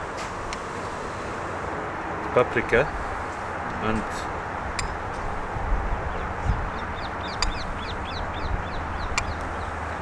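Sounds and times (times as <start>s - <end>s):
low outdoor rumble: 0.0s - 10.0s
birds chirping: 2.2s - 10.0s
faint clicks: 9.1s - 9.5s.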